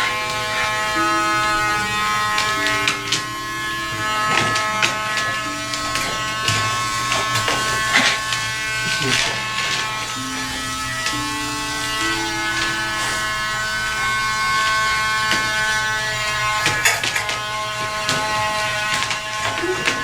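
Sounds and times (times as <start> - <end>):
grooming tool motor buzzing: 0.0 - 20.0.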